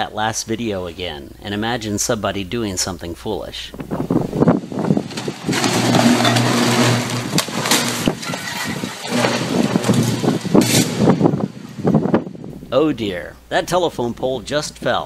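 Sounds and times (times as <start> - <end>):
low electrical hum: 0.0 - 15.0
power line arcing crackle: 3.8 - 12.6.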